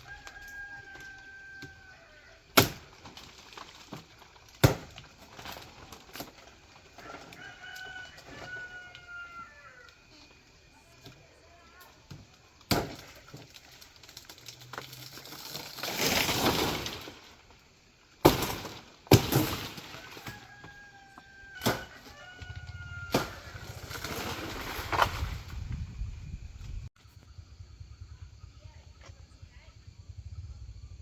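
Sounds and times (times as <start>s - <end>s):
rustling: 2.8s - 17.8s
chopping strikes on wood: 4.6s - 5.0s.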